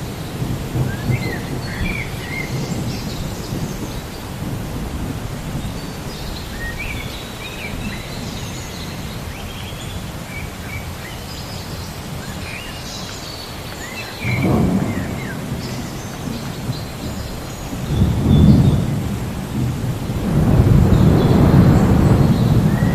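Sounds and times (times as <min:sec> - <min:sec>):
low roll of thunder: 0:00.0 - 0:07.1, 0:14.2 - 0:22.9
birds chirping: 0:00.0 - 0:22.9
steady rain: 0:00.0 - 0:22.9.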